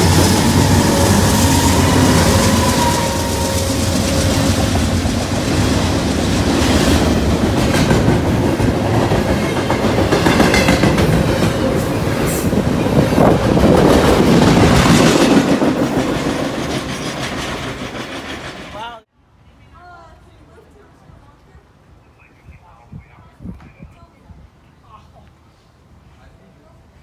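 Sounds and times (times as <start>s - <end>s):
freight train wheels rumbling: 0.0s - 19.1s.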